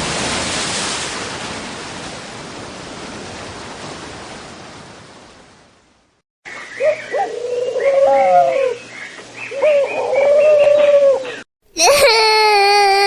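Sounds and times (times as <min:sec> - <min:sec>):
person crying: 0:11.7 - 0:13.0.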